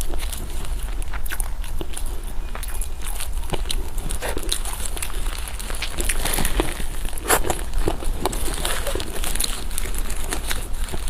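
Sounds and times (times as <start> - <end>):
steady low hum: 0.0 - 11.0
wet chewing clicks and smacks: 0.0 - 11.0.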